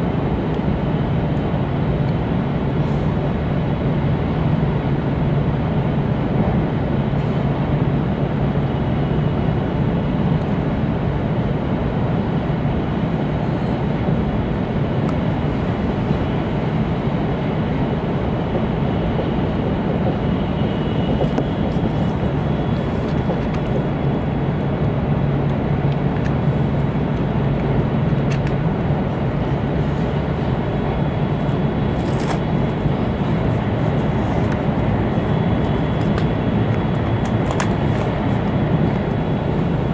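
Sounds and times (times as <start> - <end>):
train cabin rumble: 11.7 - 39.9.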